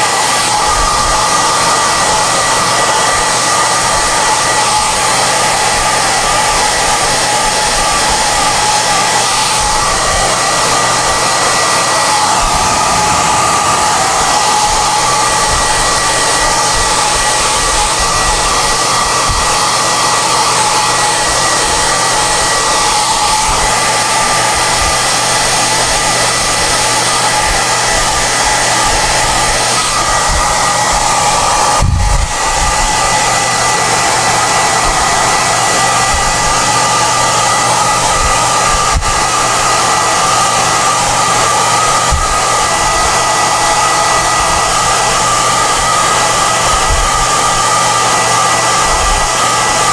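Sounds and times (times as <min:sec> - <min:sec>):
hair dryer running: 0:00.0 - 0:49.9.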